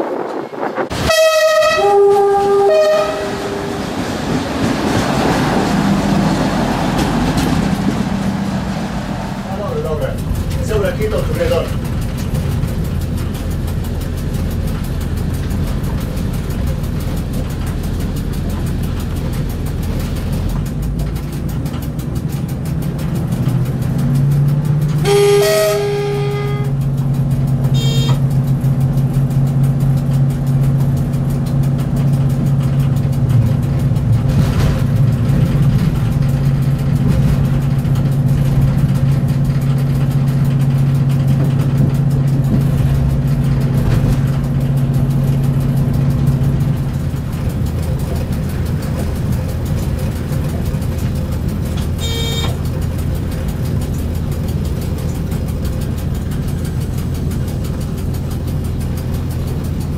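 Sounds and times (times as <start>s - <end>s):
train rumbling on rails: 0.0s - 59.9s
traction motor hum: 0.1s - 59.9s
train horn: 0.9s - 3.9s, 25.0s - 26.8s, 27.7s - 28.2s, 52.0s - 52.6s.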